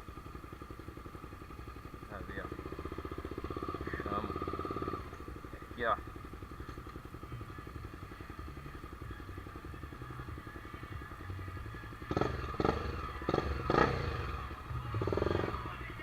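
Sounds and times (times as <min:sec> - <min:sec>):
motorcycle engine idling: 0:00.0 - 0:16.0
engine revving bursts: 0:12.1 - 0:14.4.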